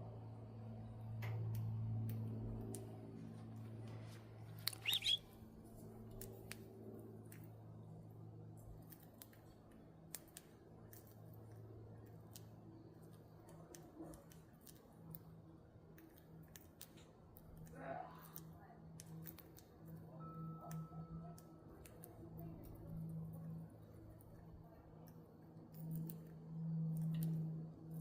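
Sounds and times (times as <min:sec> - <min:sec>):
low steady hum: 0:00.0 - 0:28.0
budgies nibbling greens: 0:01.4 - 0:28.0
budgie chirp: 0:04.6 - 0:05.2.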